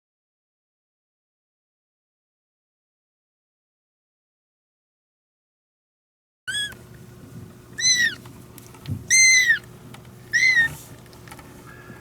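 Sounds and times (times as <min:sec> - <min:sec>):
kitten meowing: 0:06.5 - 0:06.8, 0:07.8 - 0:08.2, 0:09.1 - 0:09.7, 0:10.3 - 0:10.9.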